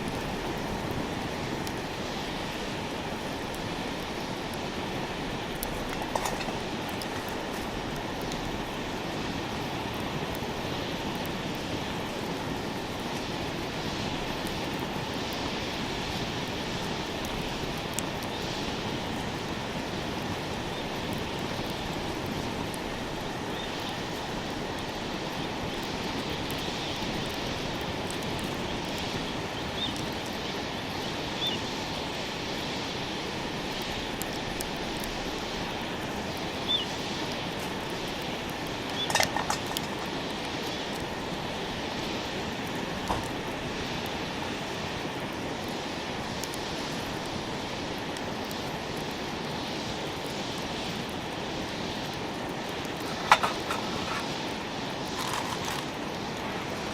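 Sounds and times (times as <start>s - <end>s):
metallic clatter: 5.8s - 7.7s.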